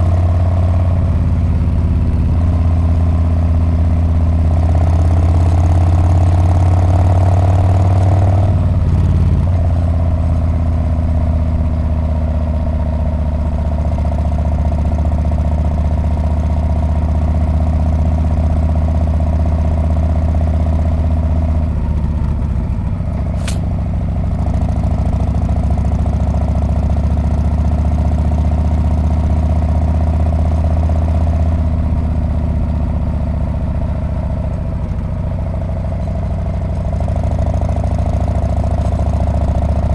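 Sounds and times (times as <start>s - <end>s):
motorcycle engine running: 0.0s - 39.9s
sharp click: 23.1s - 23.8s.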